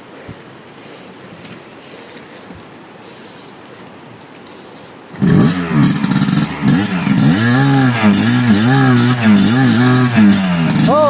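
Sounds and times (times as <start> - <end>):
steady hiss: 0.0 - 11.0
dirt bike engine revving: 5.2 - 11.0.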